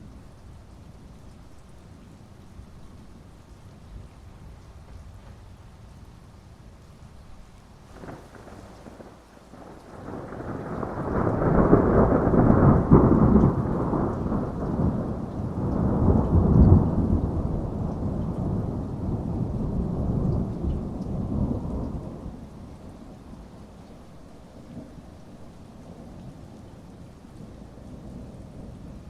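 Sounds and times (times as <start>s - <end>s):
steady rain: 0.0s - 29.0s
thunder rumbling: 7.9s - 23.4s.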